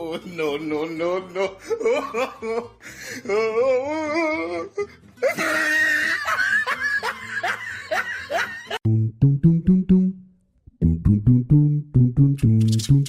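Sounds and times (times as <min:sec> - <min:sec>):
person laughing hard: 0:01.3 - 0:02.8, 0:05.2 - 0:08.8.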